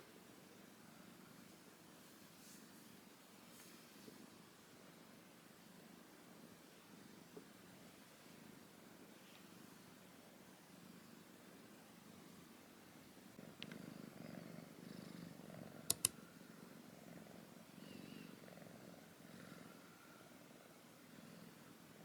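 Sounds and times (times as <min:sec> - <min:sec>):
kitten purring: 0:13.3 - 0:22.0
sharp clicks: 0:15.9 - 0:16.2.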